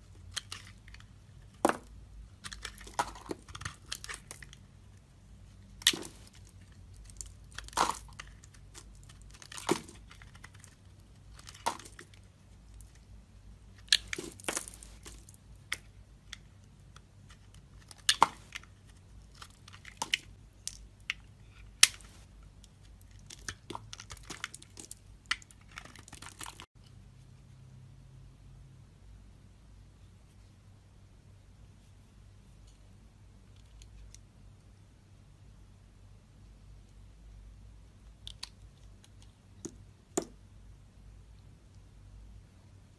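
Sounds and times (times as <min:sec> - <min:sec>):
knife carving soap: 0:00.2 - 0:05.0.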